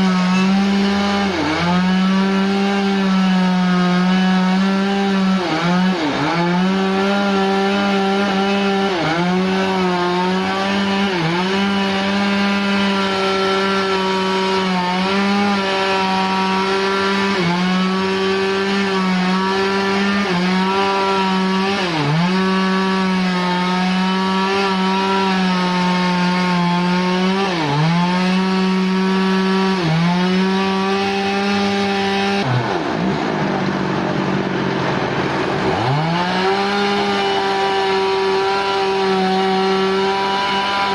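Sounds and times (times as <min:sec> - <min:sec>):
chainsaw cutting log: 0:00.0 - 0:40.9.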